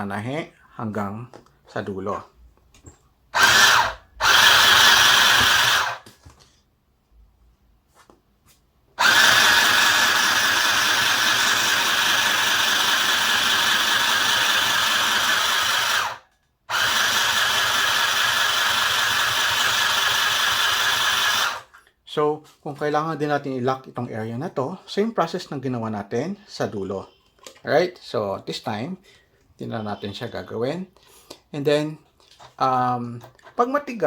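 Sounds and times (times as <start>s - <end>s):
sewing machine motor running: 3.4s - 6.0s, 9.0s - 21.6s.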